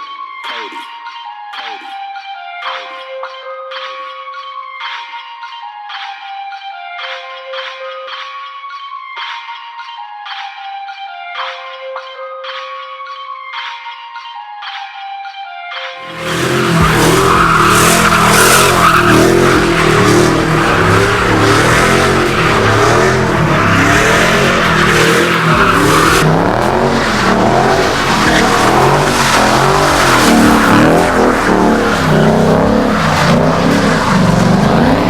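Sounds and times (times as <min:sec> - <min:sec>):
mallet-like music: 0:15.9 - 0:35.0
car engine revving hard: 0:16.0 - 0:35.0
tires squealing: 0:16.0 - 0:35.0.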